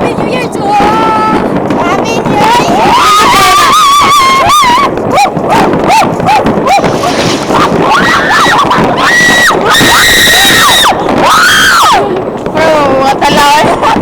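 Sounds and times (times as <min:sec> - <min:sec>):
fireworks bangs and crackle: 0:00.0 - 0:14.0
people whooping: 0:02.4 - 0:12.2
high shrieks: 0:02.8 - 0:11.9.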